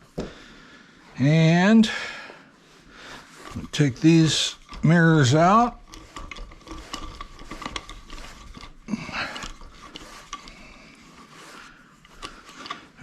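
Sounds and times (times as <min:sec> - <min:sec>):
clicking and scraping of mirrors unscrewed: 0:03.1 - 0:13.0.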